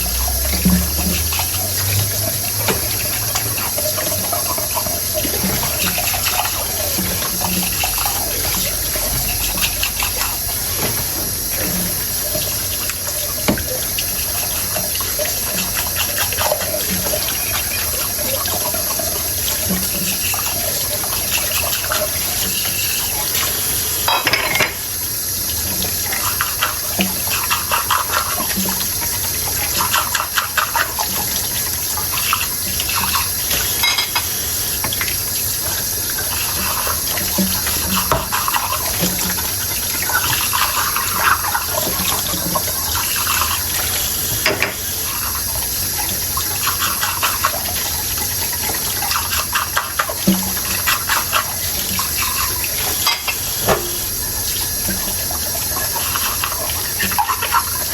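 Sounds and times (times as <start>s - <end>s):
tap running into sink: 0.0s - 57.9s
dishes clinking: 24.0s - 24.8s, 33.5s - 34.3s, 44.4s - 44.9s.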